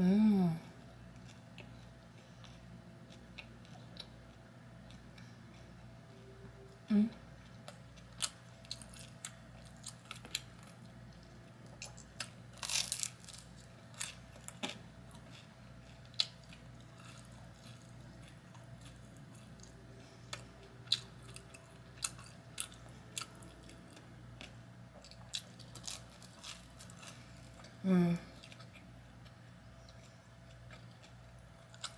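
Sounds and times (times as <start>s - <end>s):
person crunching food: 7.6s - 27.8s, 29.8s - 31.9s.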